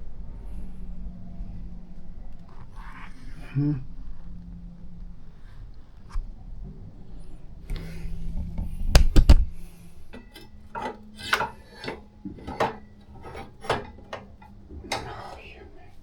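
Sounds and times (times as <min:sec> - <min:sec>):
metal hardware clinking: 0:09.9 - 0:16.0.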